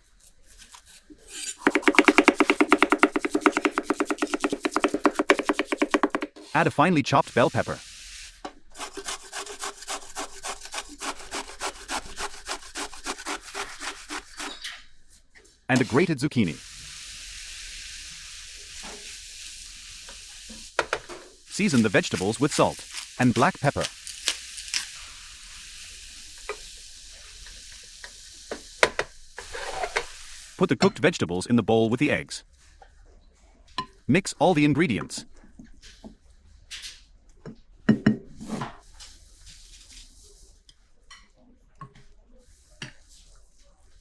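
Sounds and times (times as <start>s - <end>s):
stirring in a pan: 0.0s - 6.6s, 7.3s - 14.8s, 21.5s - 26.7s
vegetables scraped on a board: 0.1s - 6.6s, 8.7s - 14.7s, 21.5s - 25.2s
vegetables sizzling in a frying pan: 7.4s - 8.4s, 16.6s - 30.6s.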